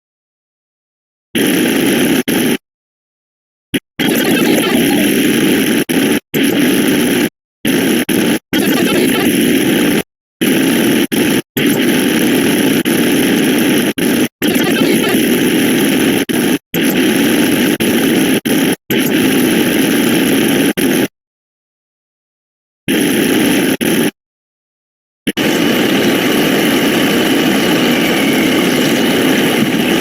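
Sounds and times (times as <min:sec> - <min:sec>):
noisy synthetic sound effects: 0:04.0 - 0:05.2, 0:25.3 - 0:30.0.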